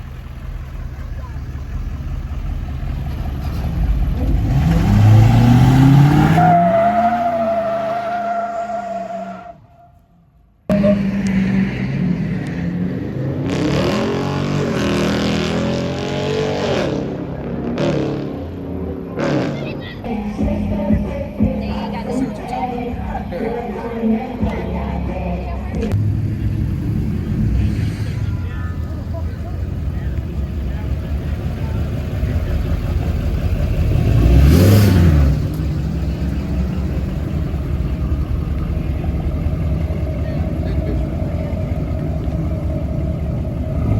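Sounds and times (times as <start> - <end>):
car engine revving hard: 3.2 - 9.4, 10.7 - 20.0, 26.0 - 43.9.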